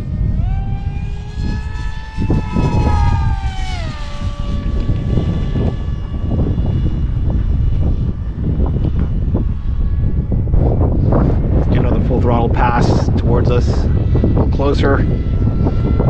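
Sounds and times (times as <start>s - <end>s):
electric motor and propeller whining: 0.0s - 16.0s
wind rumbling on microphone: 0.0s - 16.0s.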